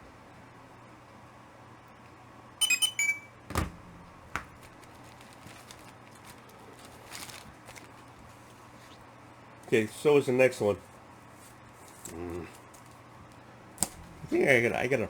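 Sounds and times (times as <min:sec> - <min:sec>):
electronic beeps: 0:02.6 - 0:03.4.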